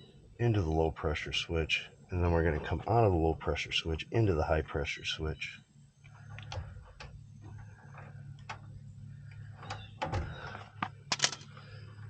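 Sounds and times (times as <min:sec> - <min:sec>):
steady low hum: 0:00.0 - 0:12.0
clicks and rustles of wiring: 0:06.0 - 0:11.7.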